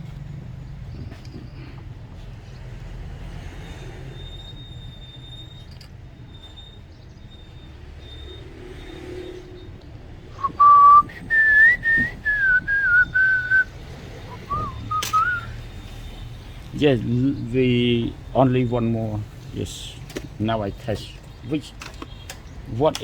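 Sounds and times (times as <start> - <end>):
person whistling a tune: 10.3 - 13.7, 14.3 - 15.6.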